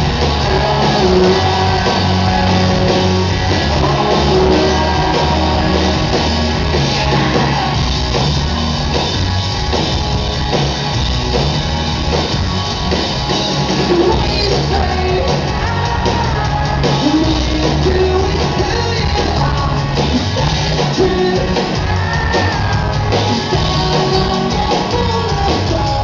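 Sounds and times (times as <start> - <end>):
person singing: 0.0 - 6.4, 13.8 - 26.0
rock band playing live: 0.0 - 26.0.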